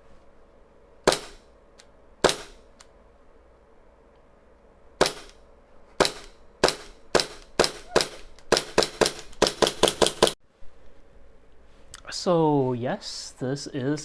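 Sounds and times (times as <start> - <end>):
airsoft pistol shots: 1.0 - 1.5, 2.2 - 2.6, 5.0 - 5.4, 6.0 - 10.4.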